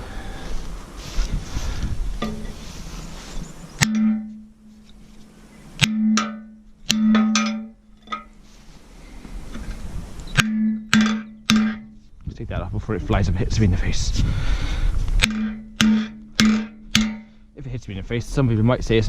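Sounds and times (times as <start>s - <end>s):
hammer striking steel: 3.8s - 4.5s, 5.8s - 8.4s, 10.4s - 12.0s, 15.2s - 17.4s.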